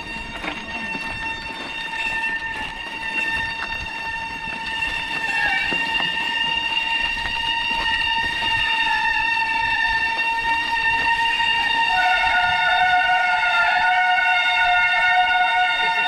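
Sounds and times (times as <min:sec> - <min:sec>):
bicycle brakes squealing: 0:00.0 - 0:16.0.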